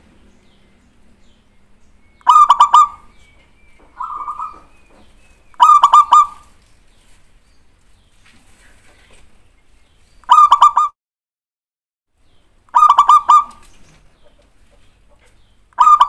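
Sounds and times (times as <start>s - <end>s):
dove cooing: 2.1s - 6.6s, 10.3s - 10.9s, 12.7s - 14.5s, 15.1s - 16.0s.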